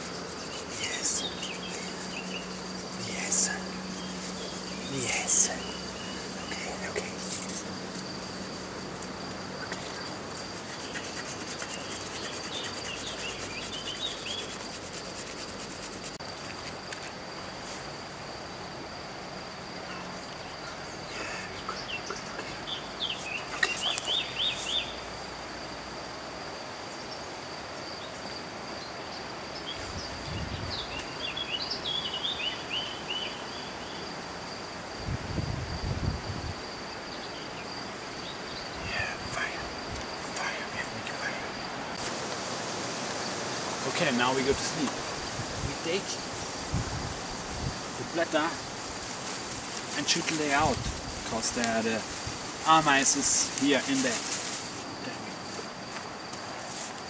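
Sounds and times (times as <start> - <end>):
noisy hiss: 0.0 - 57.0
bird chirps: 0.2 - 7.5, 9.6 - 14.7, 21.6 - 25.0.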